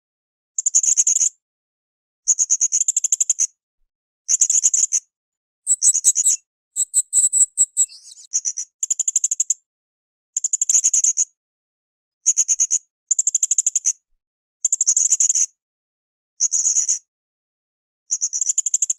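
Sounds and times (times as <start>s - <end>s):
parrot shrill trilling calls: 5.7s - 8.3s.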